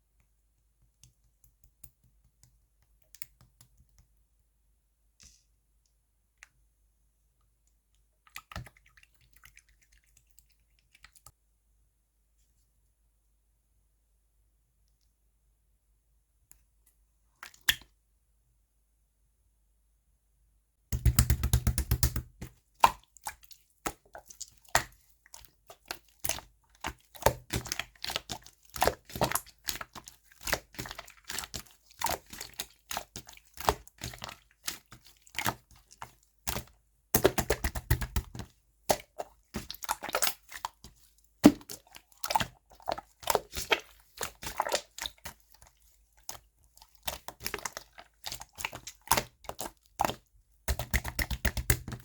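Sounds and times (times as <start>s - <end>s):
sticky clicks and wet pops: 20.9s - 31.7s, 32.3s - 45.4s, 46.3s - 52.0s.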